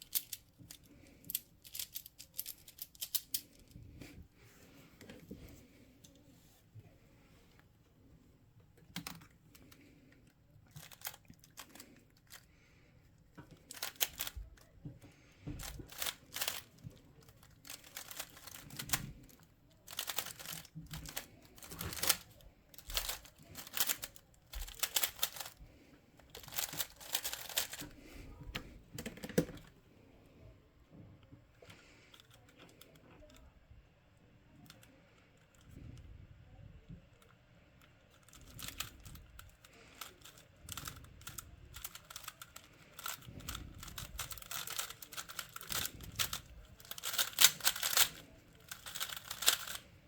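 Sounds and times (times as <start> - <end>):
puzzle cube clicking: 0.0 - 3.7, 13.5 - 14.4, 15.6 - 16.7, 17.3 - 19.3, 19.9 - 25.6, 26.3 - 28.1, 40.0 - 49.9.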